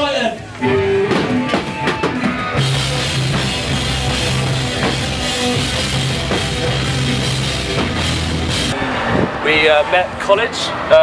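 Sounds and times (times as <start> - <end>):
rock band playing: 0.4 - 9.1.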